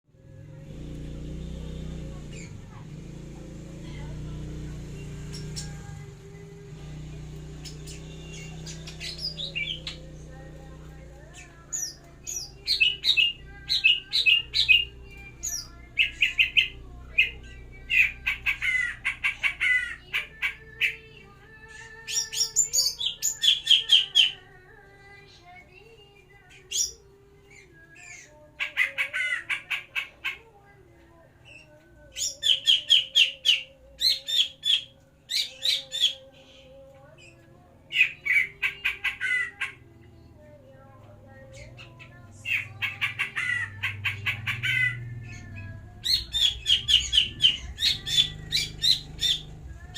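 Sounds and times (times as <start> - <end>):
bird chirping: 4.9 - 6.0, 7.4 - 24.4, 41.3 - 49.9
bird chattering: 7.6 - 21.1, 41.3 - 49.9.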